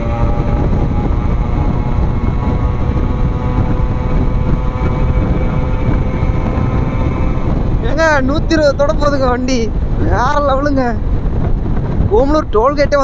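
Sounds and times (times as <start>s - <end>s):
two-stroke engine at high revs: 0.0s - 8.4s
wind rumble on microphone: 0.0s - 13.0s.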